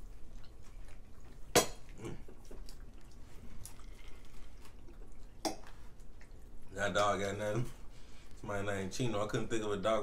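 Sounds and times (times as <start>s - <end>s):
chewing and mouth smacks: 0.0s - 6.8s.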